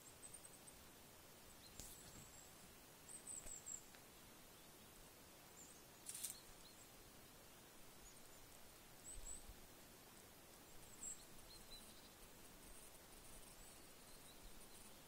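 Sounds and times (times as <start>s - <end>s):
faint high bird chirps: 1.5s - 4.0s, 5.6s - 6.9s, 8.0s - 9.6s, 10.6s - 15.0s.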